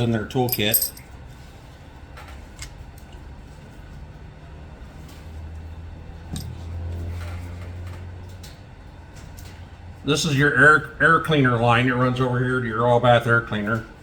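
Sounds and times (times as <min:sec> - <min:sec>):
low steady hum: 0:00.0 - 0:02.0
metal tools clicking: 0:00.5 - 0:01.0.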